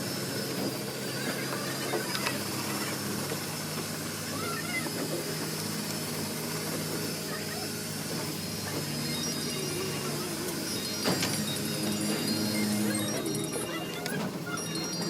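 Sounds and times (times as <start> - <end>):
engine running steadily: 0.0 - 15.0
high-pitched whine: 6.3 - 15.0.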